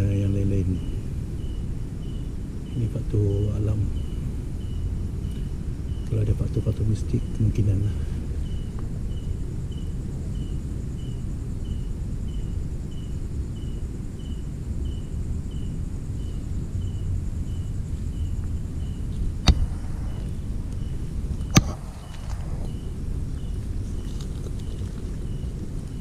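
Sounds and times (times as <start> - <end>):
insect chirping: 0.0 - 26.0
wind rumble: 0.0 - 26.0
sharp clicks: 21.4 - 22.5.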